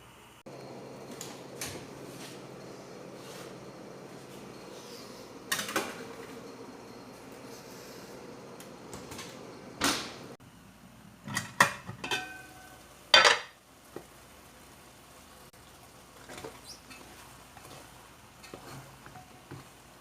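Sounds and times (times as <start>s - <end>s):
metal kitchenware clattering: 11.3s - 13.6s, 18.4s - 19.5s
metal pot ringing: 12.0s - 13.5s.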